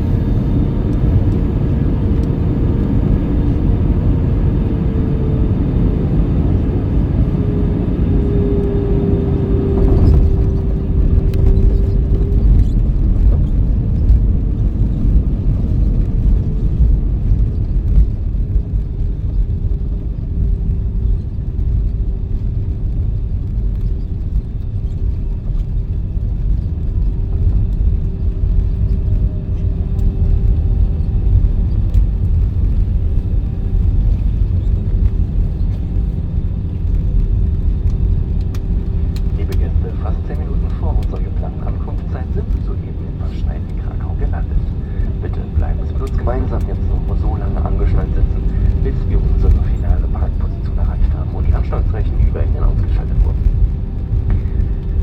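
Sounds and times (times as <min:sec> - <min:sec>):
airliner cabin engine rumble: 0:00.0 - 0:55.0
faint steady whine: 0:08.2 - 0:55.0.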